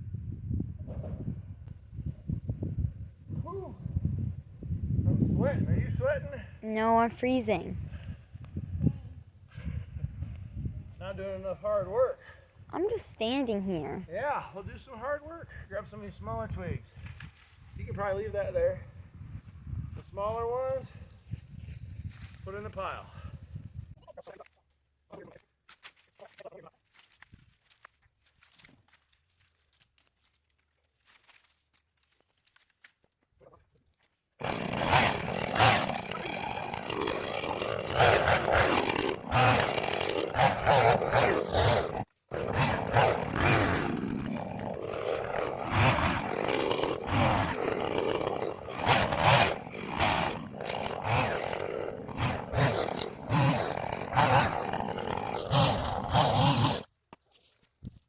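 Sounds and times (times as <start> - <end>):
chainsaw revving: 6.6 - 8.0, 12.8 - 14.0, 34.4 - 56.9.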